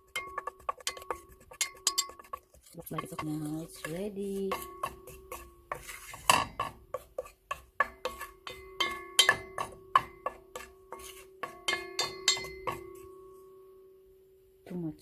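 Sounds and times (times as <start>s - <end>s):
metal utensil scraping metal pan: 0.0s - 13.2s.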